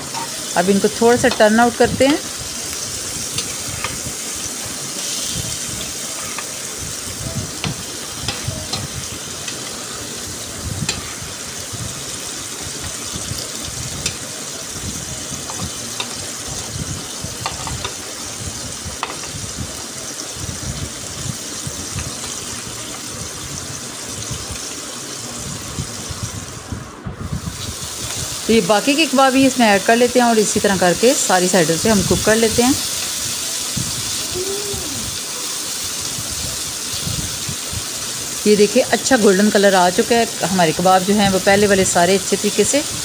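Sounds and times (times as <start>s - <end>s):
kebabs sizzling in oil: 0.0s - 43.0s.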